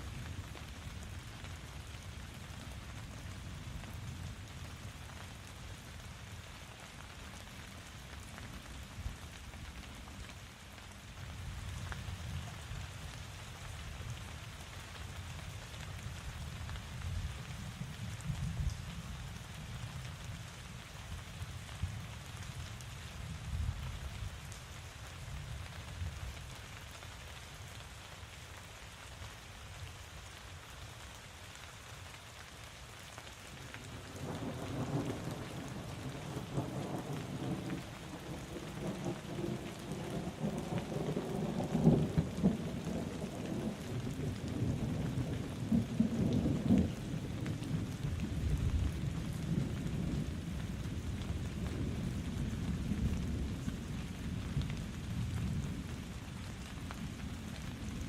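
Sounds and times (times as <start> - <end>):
steady rain falling: 0.0 - 58.0
thunder rumbling: 34.0 - 53.9.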